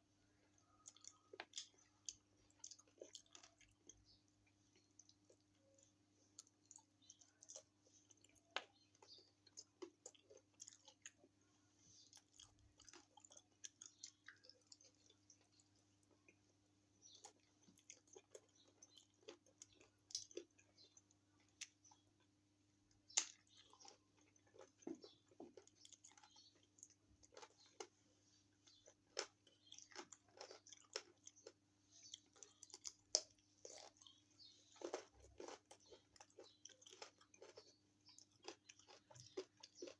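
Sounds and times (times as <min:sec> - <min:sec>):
chewing crunches: 0:00.3 - 0:39.9.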